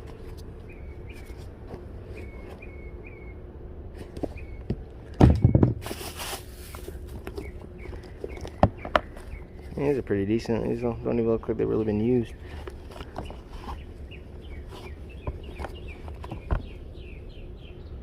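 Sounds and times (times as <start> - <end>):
steady low hum: 0.0 - 18.0
short rustle: 5.8 - 8.4.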